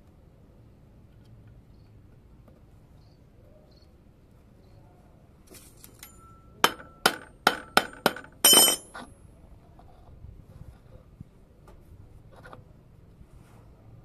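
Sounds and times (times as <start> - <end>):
metal knocking on metal: 6.6 - 8.8
metal clattering: 6.7 - 8.9.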